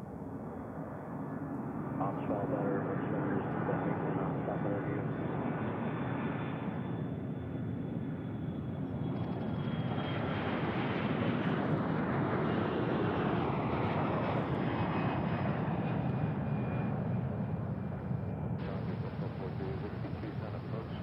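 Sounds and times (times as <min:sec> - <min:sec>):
jet engines rushing: 0:09.0 - 0:21.0.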